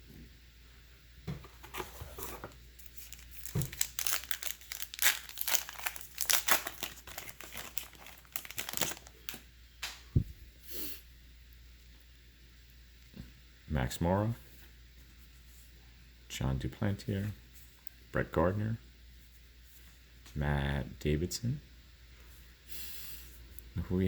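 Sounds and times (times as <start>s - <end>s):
foil wrapper crinkling and tearing: 2.8s - 9.5s.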